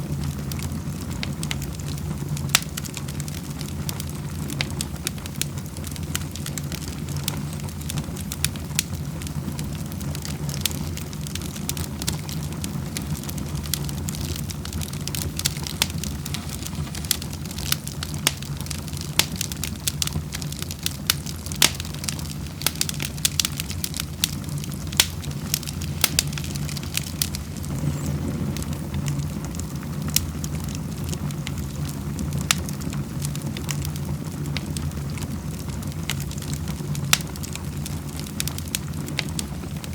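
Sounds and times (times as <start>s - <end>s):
wood fire crackling: 0.0s - 39.9s
low rumble: 23.6s - 30.6s.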